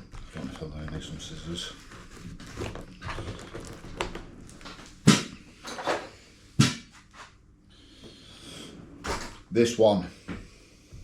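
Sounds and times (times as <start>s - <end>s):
packaging rustling: 1.5s - 5.0s.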